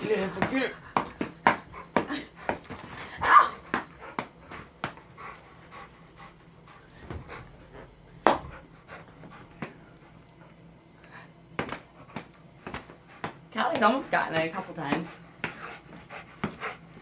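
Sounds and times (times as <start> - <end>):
dog panting: 0.1 - 3.0, 3.8 - 17.0.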